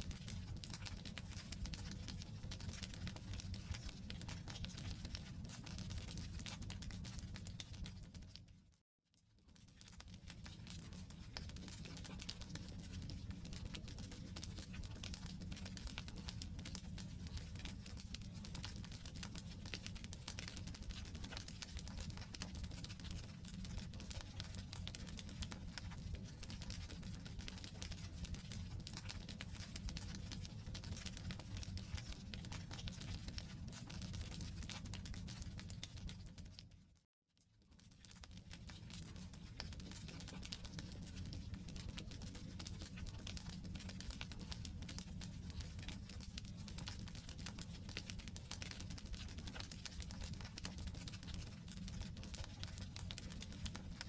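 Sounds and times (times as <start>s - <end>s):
low rumble of burning: 9.9s - 36.5s.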